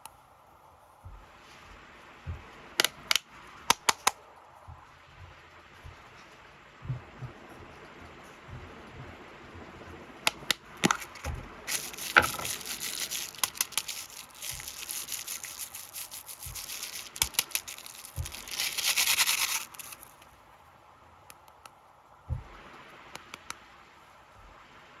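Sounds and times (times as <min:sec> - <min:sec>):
plastic packaging crinkling: 0:10.3 - 0:20.3.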